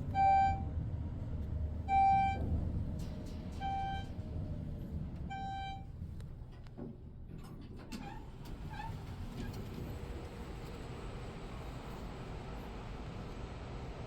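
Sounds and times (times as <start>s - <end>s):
elevator chime beep: 0.0s - 0.7s, 1.9s - 2.5s, 3.6s - 4.2s, 5.3s - 5.9s
elevator low hum: 0.0s - 7.2s.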